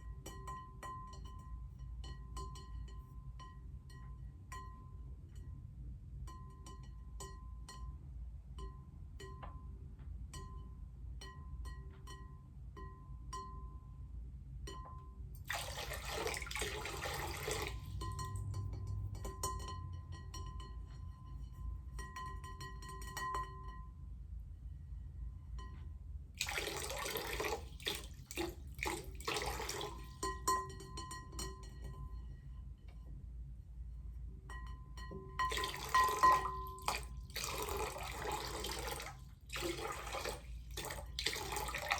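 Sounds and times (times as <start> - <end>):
water pouring into a bowl: 15.4 - 19.2, 26.4 - 30.4, 35.4 - 41.9
water drops plinking: 15.5 - 19.6, 26.4 - 30.6, 35.4 - 41.9.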